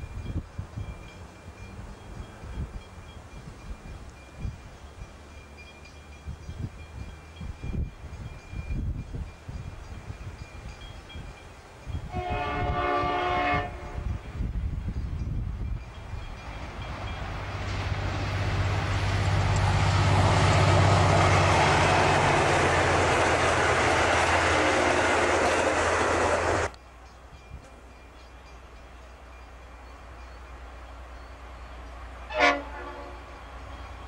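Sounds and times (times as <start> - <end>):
diesel passenger train passing: 0.0 - 34.0
distant diesel train rumble: 0.0 - 34.0.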